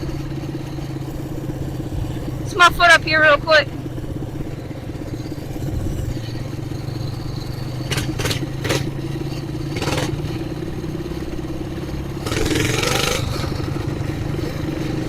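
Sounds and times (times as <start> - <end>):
mini bike engine running: 0.0 - 15.0
sharp clatters: 5.1 - 10.4.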